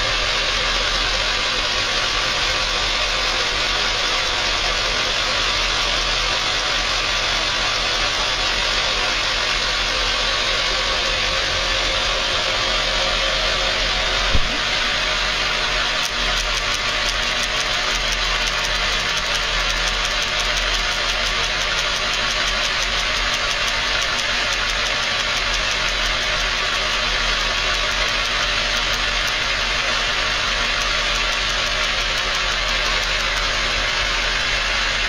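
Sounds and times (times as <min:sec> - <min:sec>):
car engine running: 0:00.0 - 0:35.0
spark plugs ticking: 0:16.0 - 0:33.7.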